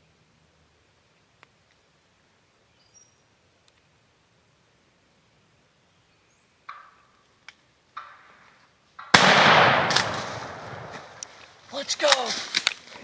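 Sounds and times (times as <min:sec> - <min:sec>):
shotgun shot echoing: 0:09.0 - 0:11.3.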